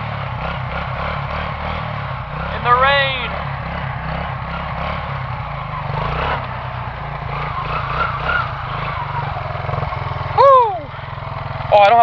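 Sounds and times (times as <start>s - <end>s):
quad engine running: 0.0s - 12.0s.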